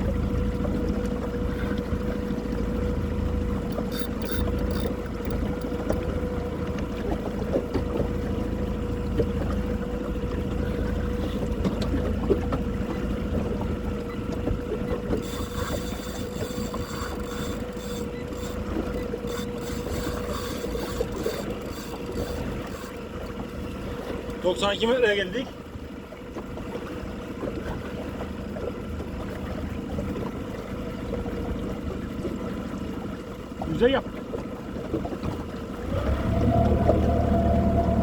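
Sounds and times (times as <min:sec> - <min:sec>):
motorboat engine humming: 0:00.0 - 0:38.0.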